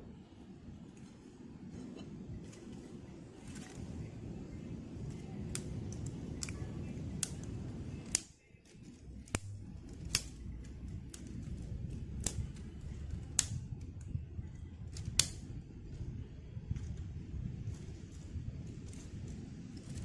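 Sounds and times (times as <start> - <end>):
low rumble: 8.8 - 20.0.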